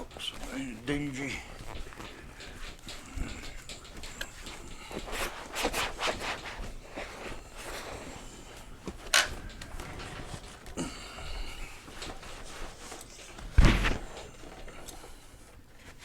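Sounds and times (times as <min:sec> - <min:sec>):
scrubbing a seat cover: 0:04.4 - 0:08.8.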